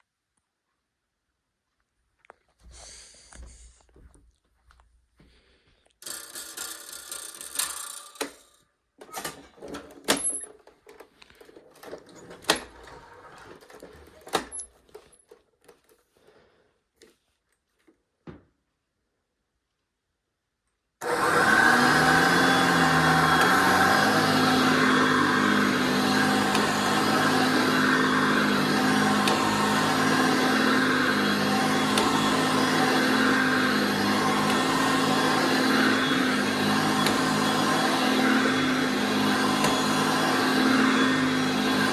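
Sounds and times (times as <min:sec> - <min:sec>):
vacuum cleaner parts clicking: 0:06.0 - 0:16.0, 0:21.0 - 0:41.9.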